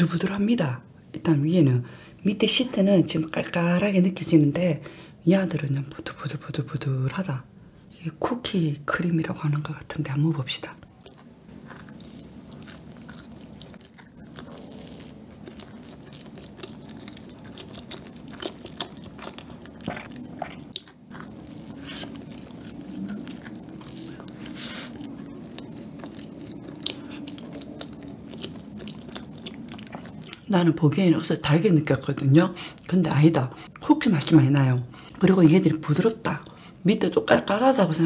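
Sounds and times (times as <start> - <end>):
person chewing cake: 10.7 - 36.8.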